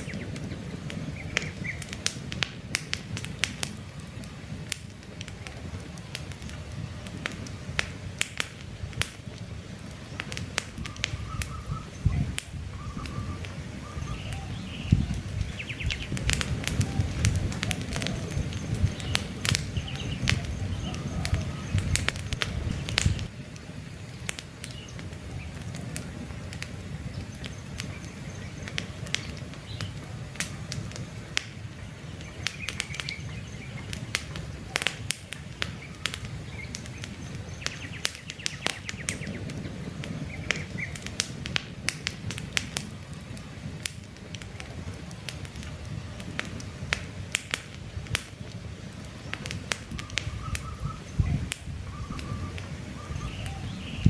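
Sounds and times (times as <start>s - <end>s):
faint birds chirping: 0.0s - 2.1s, 10.0s - 41.2s, 49.0s - 54.0s
campfire crackling and popping: 0.0s - 54.0s.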